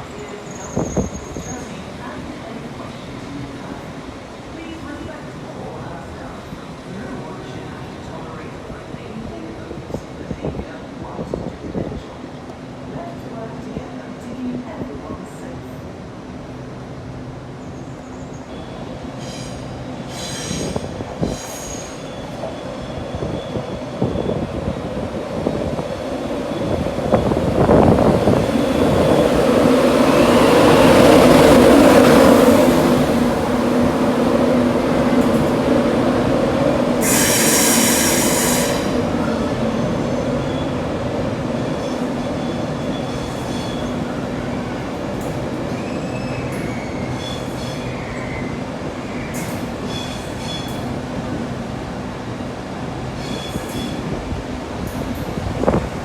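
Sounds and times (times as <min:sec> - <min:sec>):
train wheels squealing: 0:00.0 - 0:01.8, 0:17.6 - 0:24.5, 0:37.0 - 0:39.0, 0:41.6 - 0:44.0, 0:45.7 - 0:50.9, 0:53.2 - 0:54.1
train humming through station: 0:00.0 - 0:56.0.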